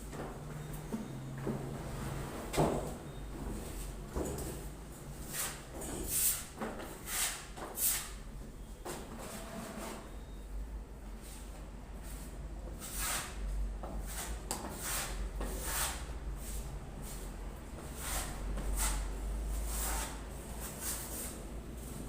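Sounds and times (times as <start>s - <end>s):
putty knife scraping wall: 17.9s - 21.3s.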